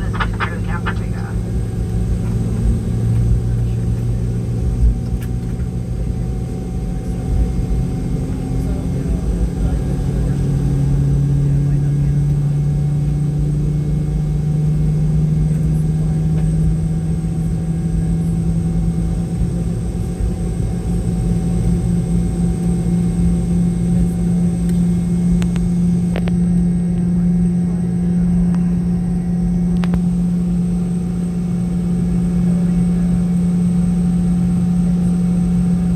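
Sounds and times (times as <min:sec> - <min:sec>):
jet engine hum in cabin: 0:00.0 - 0:35.9.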